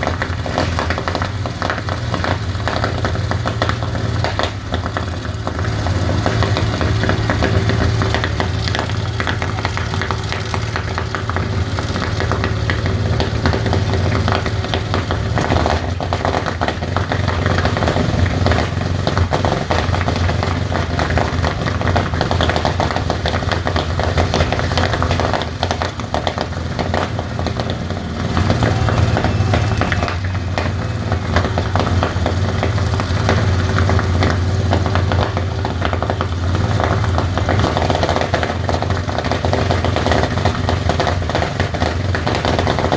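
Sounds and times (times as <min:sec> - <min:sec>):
aircraft piston engine running: 0:23.4 - 0:37.9.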